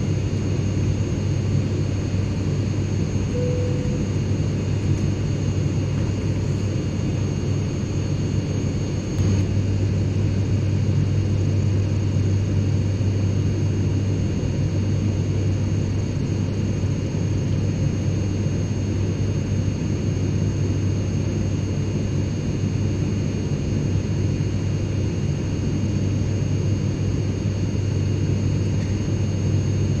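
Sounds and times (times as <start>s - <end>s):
airplane engine drone: 0.0s - 30.0s
faint high whines: 2.9s - 7.5s.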